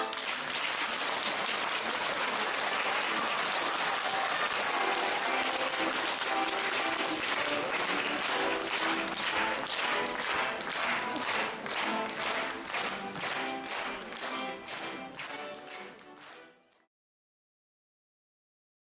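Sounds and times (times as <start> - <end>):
audience applauding: 0.0 - 16.9
soft music with held notes: 4.7 - 16.9.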